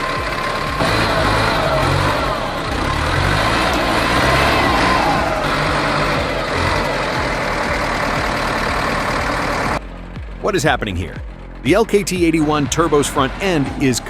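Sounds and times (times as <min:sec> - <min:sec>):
heavy diesel engine revving: 0:00.0 - 0:14.0.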